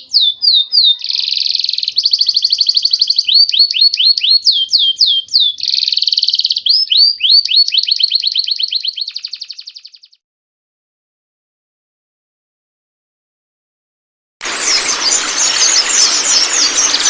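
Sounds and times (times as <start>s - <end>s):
bird calling with trills and whistles: 0.0s - 10.2s, 14.4s - 17.0s.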